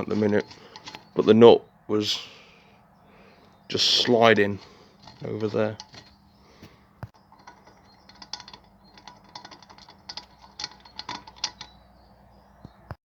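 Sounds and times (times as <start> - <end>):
nut clicking and rattling on thread: 0.0 - 1.4, 3.8 - 6.3, 7.0 - 12.0.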